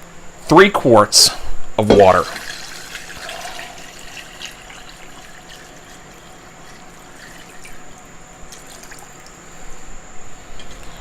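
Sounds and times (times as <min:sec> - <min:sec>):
water pouring into a pot: 0:02.1 - 0:09.4.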